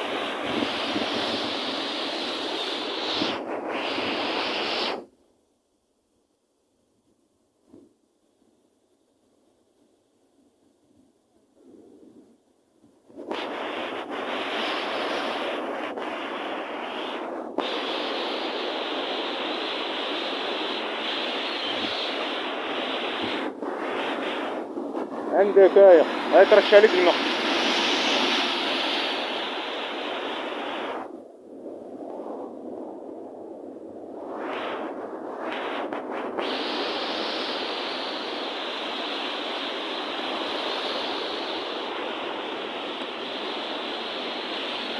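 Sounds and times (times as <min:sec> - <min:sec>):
sea surf: 0:00.0 - 0:04.9, 0:13.4 - 0:31.2, 0:34.5 - 0:44.9
wind: 0:00.0 - 0:44.9.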